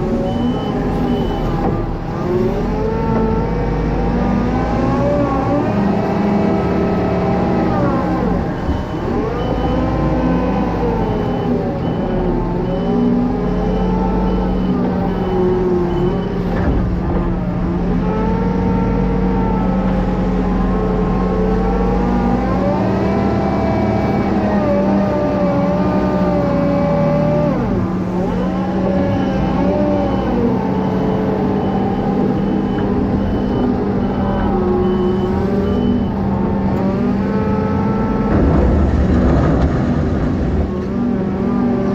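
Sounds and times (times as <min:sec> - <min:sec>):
farm machinery engine revving: 0:00.0 - 0:41.9
reversing alarm beeping: 0:00.2 - 0:02.6, 0:06.3 - 0:17.0, 0:28.2 - 0:38.2.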